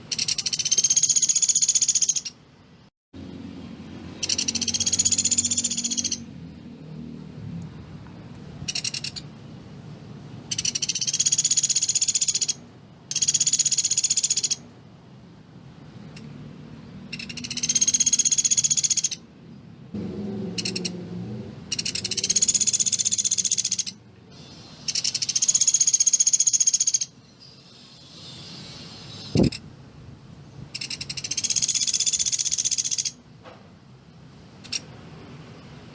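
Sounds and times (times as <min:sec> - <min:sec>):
woodpecker rattling trills: 0:00.1 - 0:02.4, 0:04.2 - 0:06.3, 0:08.7 - 0:09.3, 0:10.5 - 0:14.6, 0:17.1 - 0:19.2, 0:20.6 - 0:21.0, 0:21.7 - 0:24.0, 0:24.8 - 0:27.1, 0:30.8 - 0:33.2.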